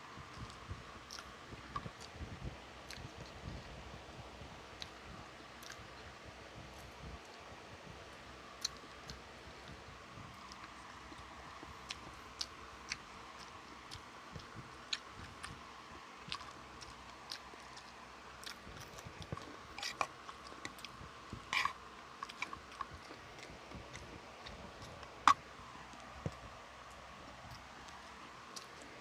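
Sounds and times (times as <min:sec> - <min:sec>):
faint steady hum: 0:00.0 - 0:29.0
person chewing and biting: 0:08.6 - 0:15.6, 0:16.2 - 0:29.0.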